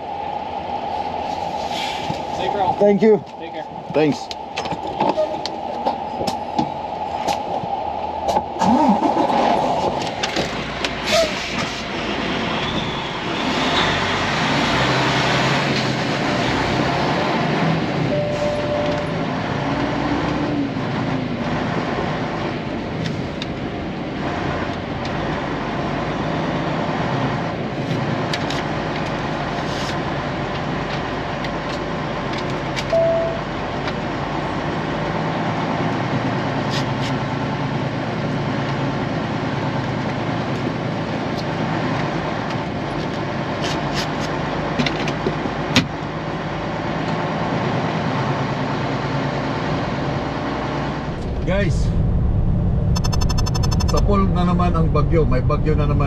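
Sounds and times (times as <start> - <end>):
diesel truck engine running: 7.7 - 56.0
short beeps: 18.1 - 19.2, 32.9 - 33.5, 52.9 - 54.1.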